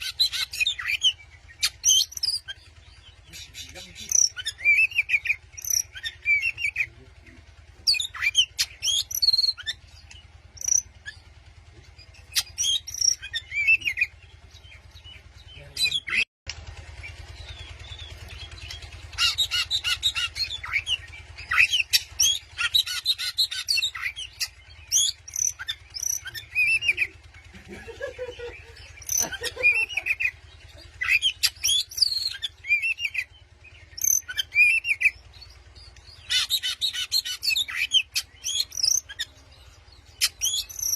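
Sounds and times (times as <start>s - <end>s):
bird singing whistles and trills: 0.0s - 2.6s, 3.3s - 6.8s, 7.9s - 11.2s, 12.3s - 14.1s, 17.5s - 27.1s, 31.0s - 39.4s, 40.0s - 40.9s
steady low hum: 0.0s - 40.9s.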